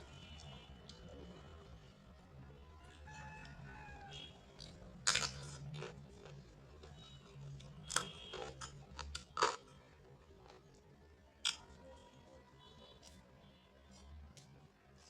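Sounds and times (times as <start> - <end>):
person chewing crunchy food: 3.0 - 10.8.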